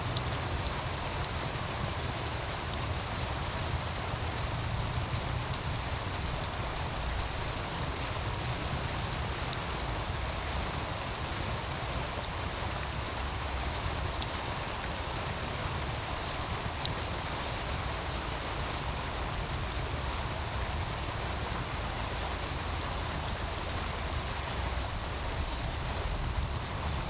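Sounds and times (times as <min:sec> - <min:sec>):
wood fire crackling and popping: 0:00.0 - 0:27.0.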